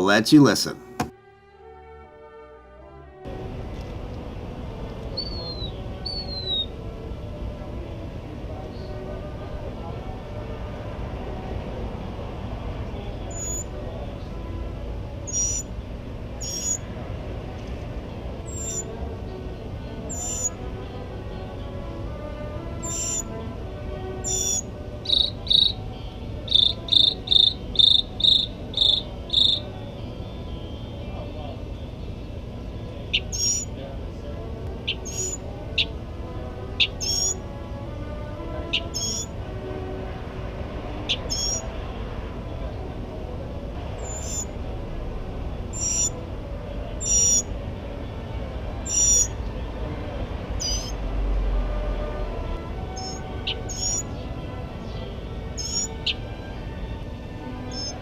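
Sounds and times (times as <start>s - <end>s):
mockingbird singing: 5.2s - 6.8s, 13.3s - 13.7s, 15.3s - 15.7s, 16.4s - 16.8s, 18.5s - 18.9s, 20.1s - 20.6s, 22.8s - 23.4s, 24.2s - 29.7s, 33.1s - 33.7s, 34.8s - 36.0s, 36.8s - 37.4s, 38.7s - 39.3s, 41.1s - 41.7s, 44.0s - 44.5s, 45.8s - 46.2s, 47.0s - 47.4s, 48.9s - 49.3s, 50.6s - 50.9s, 53.0s - 54.2s, 55.5s - 56.2s, 57.7s - 58.0s.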